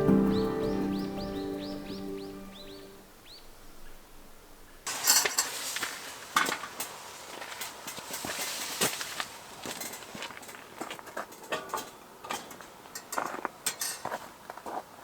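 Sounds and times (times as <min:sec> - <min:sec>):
background music: 0:00.0 - 0:03.0.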